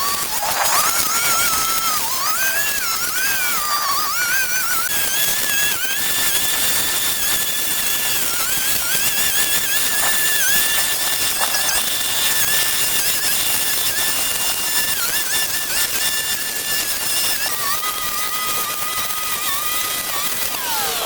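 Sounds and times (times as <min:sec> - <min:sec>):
motor high-pitched whine: 0:00.0 - 0:21.0
loud hiss: 0:19.1 - 0:21.0.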